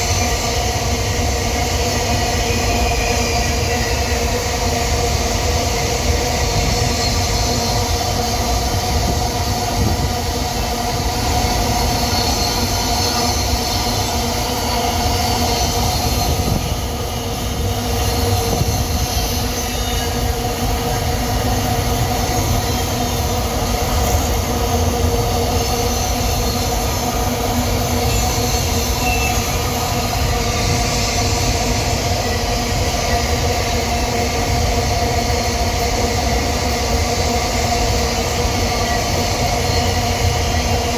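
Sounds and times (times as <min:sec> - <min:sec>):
wheel squeal: 0:00.0 - 0:04.3, 0:06.3 - 0:08.4, 0:17.9 - 0:21.0, 0:25.5 - 0:33.5
train wagons rumbling past: 0:00.0 - 0:40.9.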